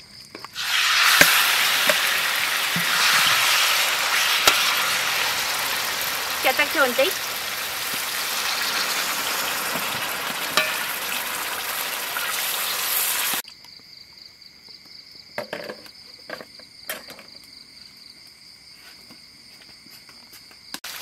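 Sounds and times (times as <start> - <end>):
insect chirring: 0.0 - 15.3
water hissing in hot wok: 0.6 - 13.4.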